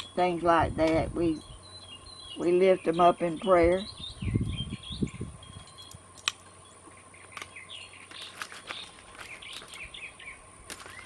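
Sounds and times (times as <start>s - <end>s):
small songbirds chirping: 0.0s - 11.0s
sharp clicks: 5.8s - 6.4s.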